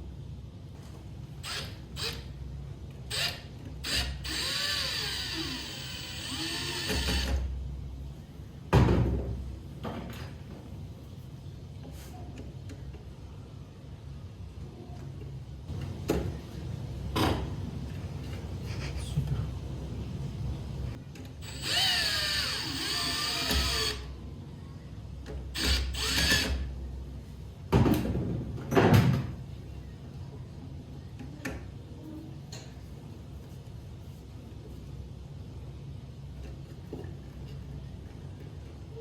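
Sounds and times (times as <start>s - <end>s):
electric drill running: 1.4s - 2.3s, 3.1s - 7.4s, 21.4s - 24.1s, 25.6s - 26.7s.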